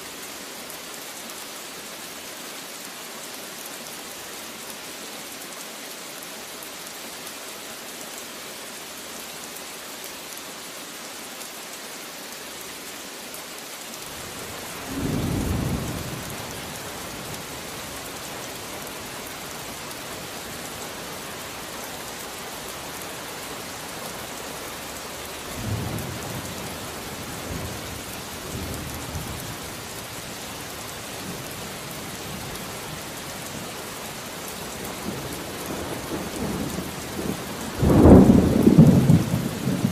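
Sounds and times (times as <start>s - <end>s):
rain falling: 0.0s - 39.9s
thunder rumbling: 35.8s - 39.9s.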